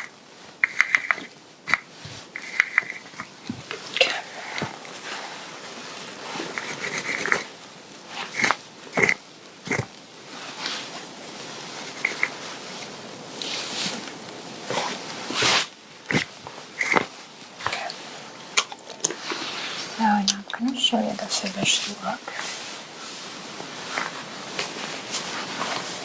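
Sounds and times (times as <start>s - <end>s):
sharp clicks and crinkles: 0.0s - 5.0s, 6.4s - 7.6s, 11.8s - 13.5s, 14.8s - 19.4s
fabric rustling: 0.0s - 26.0s.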